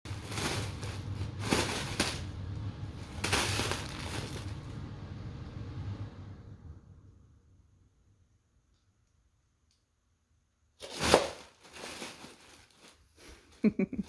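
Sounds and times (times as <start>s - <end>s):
kitten scuffing on floor: 0.1s - 2.3s, 3.0s - 4.6s.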